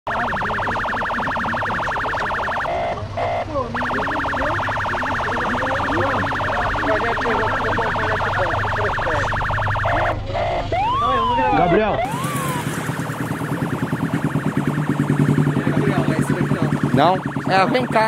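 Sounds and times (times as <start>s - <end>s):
short steady beeps: 0.1s - 11.0s
siren fast pulsing warble: 0.1s - 18.0s.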